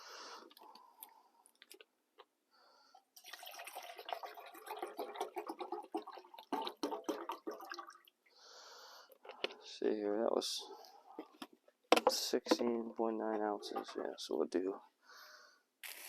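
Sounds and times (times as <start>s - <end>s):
water pouring from bottle: 3.2s - 8.1s, 13.4s - 14.4s.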